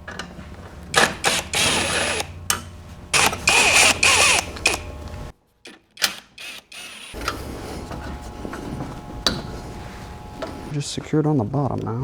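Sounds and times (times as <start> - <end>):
cordless drill running: 1.0 - 2.4, 3.1 - 5.3, 6.2 - 7.2.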